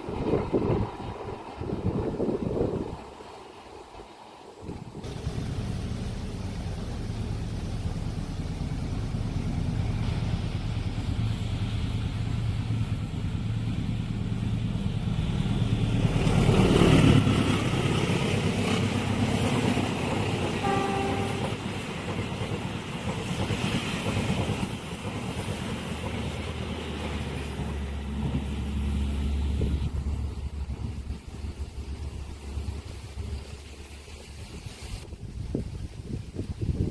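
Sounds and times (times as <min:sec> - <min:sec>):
diesel train engine rumble: 0:00.0 - 0:35.0
train horn toot: 0:20.6 - 0:21.8.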